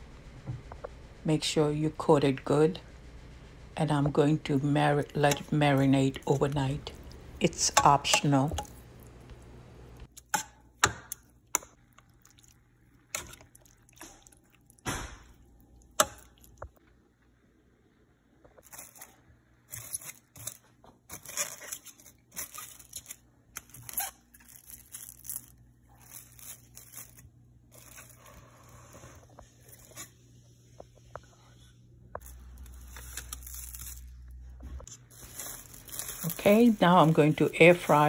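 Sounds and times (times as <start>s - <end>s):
packaging crinkling and tearing: 18.6s - 28.4s, 32.2s - 38.0s.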